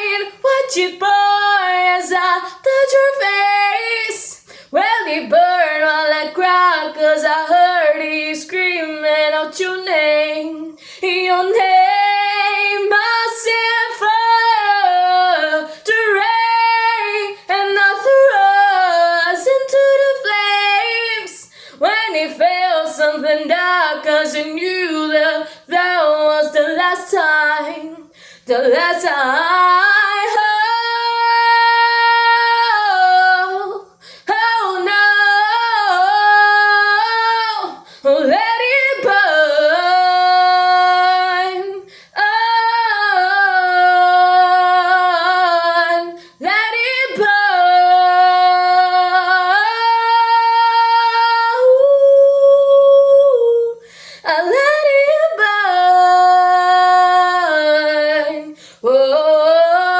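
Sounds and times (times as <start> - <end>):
woman singing unaccompanied: 0.0 - 59.9
woman breathing: 4.4 - 4.8, 10.8 - 11.0, 21.4 - 21.8, 28.1 - 28.5, 33.9 - 34.3, 37.8 - 38.1, 41.8 - 42.2, 53.8 - 54.3, 58.6 - 58.8.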